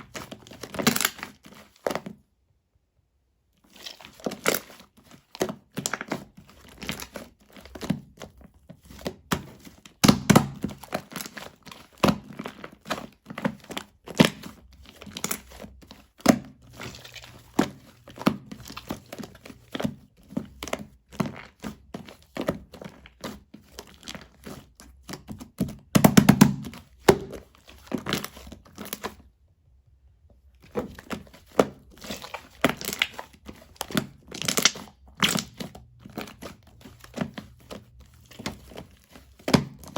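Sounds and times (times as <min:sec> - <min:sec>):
slime squishing and squelching: 0:00.0 - 0:02.3, 0:03.6 - 0:29.4, 0:30.3 - 0:39.9.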